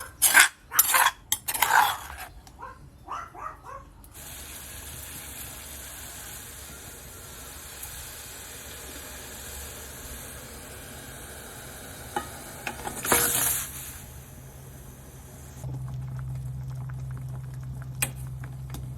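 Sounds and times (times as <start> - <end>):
cookware clattering: 0.0 - 2.3, 12.2 - 13.7
food cooking hiss: 4.2 - 15.7.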